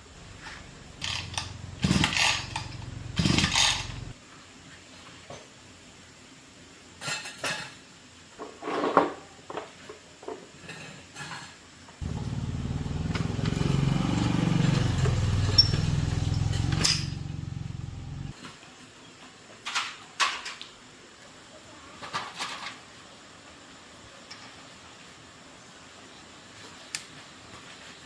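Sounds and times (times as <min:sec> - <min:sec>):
metal tools clinking: 0:01.0 - 0:04.1, 0:14.6 - 0:17.4
small motorcycle engine running: 0:01.0 - 0:04.2, 0:12.0 - 0:18.3.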